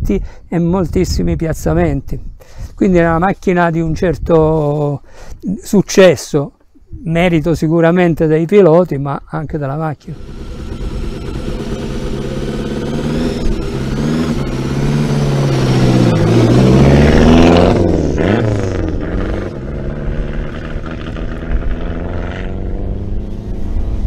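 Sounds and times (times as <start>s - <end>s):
rally car engine accelerating past: 10.3s - 24.0s.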